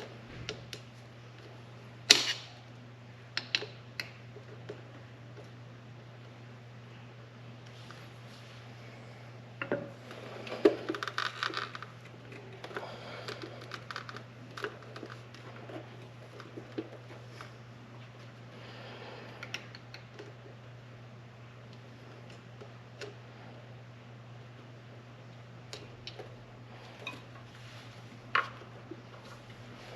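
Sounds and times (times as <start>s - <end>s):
steady low hum: 0.0s - 29.9s
rubbery crinkly handling noise: 10.0s - 18.4s, 26.2s - 29.9s.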